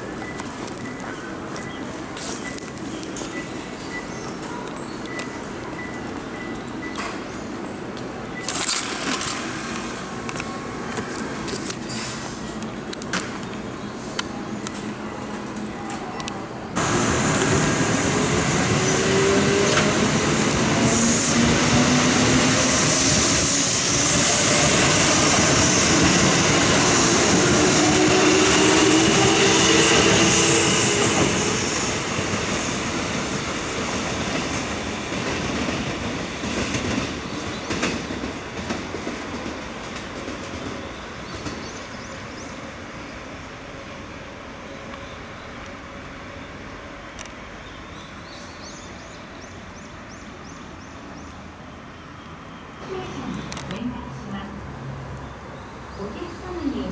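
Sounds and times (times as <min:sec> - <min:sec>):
train wheel noise: 0:00.0 - 0:42.9
wheels clacking on track: 0:00.2 - 0:42.5
electric train motors humming: 0:16.7 - 0:35.0.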